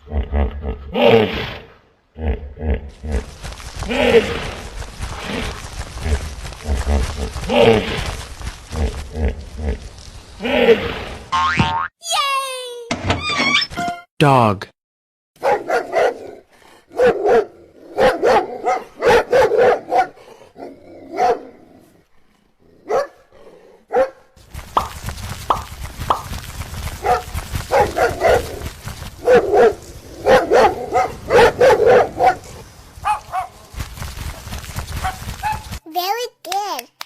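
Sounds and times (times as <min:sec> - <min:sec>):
dog barking: 0:15.4 - 0:21.5, 0:22.9 - 0:23.2, 0:23.9 - 0:24.3, 0:27.0 - 0:33.6.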